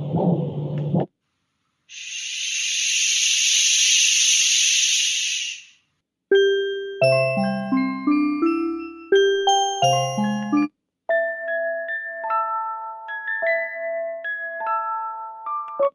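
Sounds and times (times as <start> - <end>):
high-pitched hiss: 1.9 - 5.9
bell-like chiming melody: 6.3 - 15.7.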